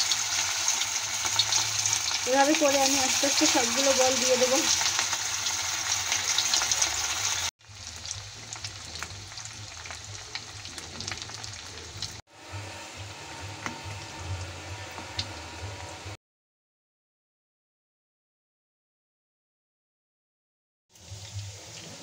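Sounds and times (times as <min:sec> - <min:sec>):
food deep-frying in oil: 0:00.0 - 0:16.2, 0:20.9 - 0:22.0.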